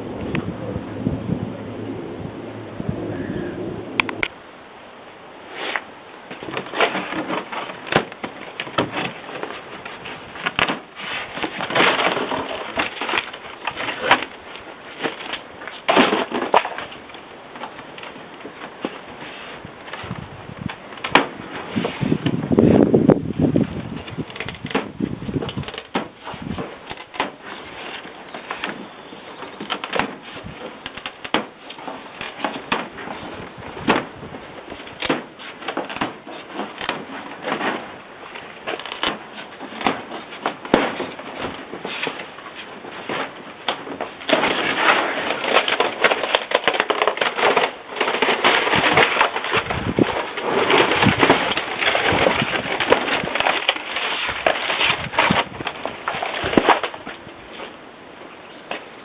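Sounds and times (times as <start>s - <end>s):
continuous rasping noise: 5.4s - 59.0s
clicks and knocks of hand work: 24.0s - 57.8s.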